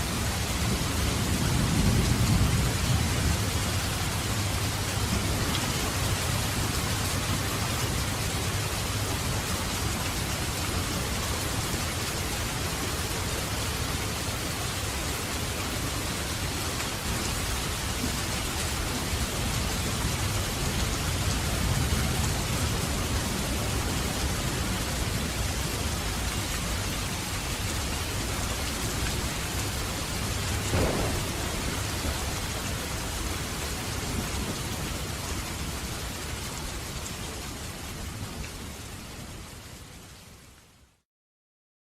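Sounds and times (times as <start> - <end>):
heavy rain falling: 0.0 - 40.8
low rolling thunder: 0.2 - 9.4, 18.0 - 26.7, 29.1 - 35.7
sharp crackle: 30.7 - 31.9.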